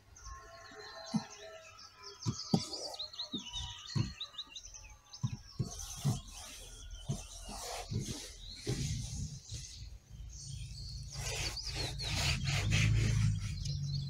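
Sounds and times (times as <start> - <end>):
songbirds chirping and trilling: 0.0 - 14.0
soft low knocks: 5.2 - 9.8.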